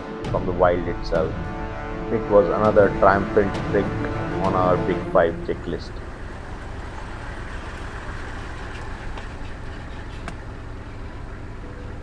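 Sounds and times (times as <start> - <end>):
jeep engine rumbling: 2.8 - 12.0.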